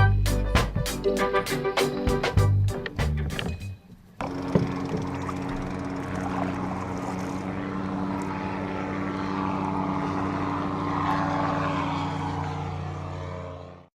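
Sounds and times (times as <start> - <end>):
engine drone: 4.1 - 13.9.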